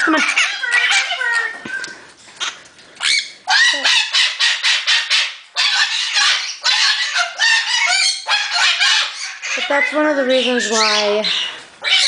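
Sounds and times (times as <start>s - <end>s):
cockatoo screaming: 3.0s - 12.0s.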